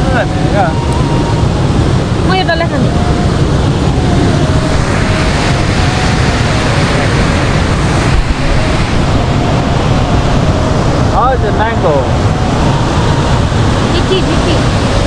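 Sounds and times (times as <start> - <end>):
river rushing: 0.0 - 15.0.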